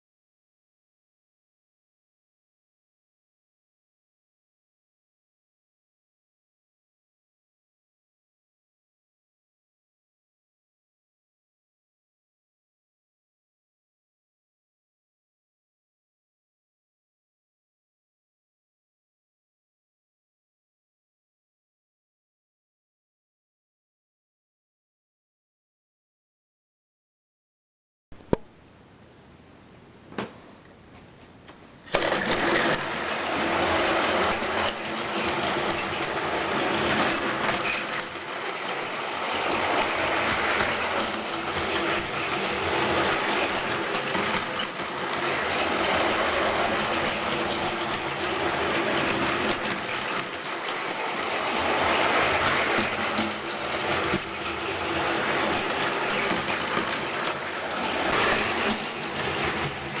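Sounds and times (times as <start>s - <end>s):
toy train motor whirring: 31.9s - 60.0s.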